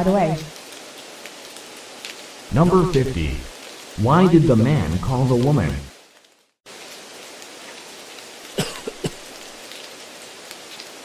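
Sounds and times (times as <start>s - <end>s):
rain-like hiss with crackling: 0.0s - 11.0s
person coughing: 8.6s - 9.2s.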